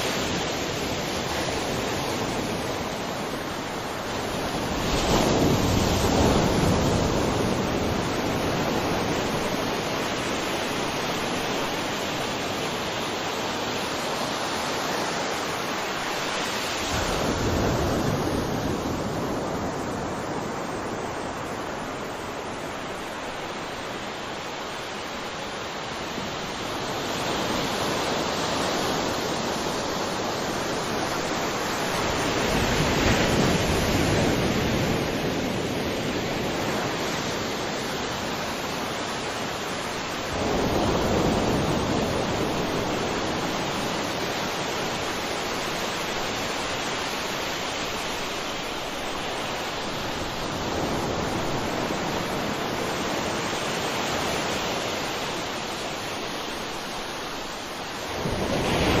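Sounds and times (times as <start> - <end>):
waves washing on shore: 0.0 - 59.0.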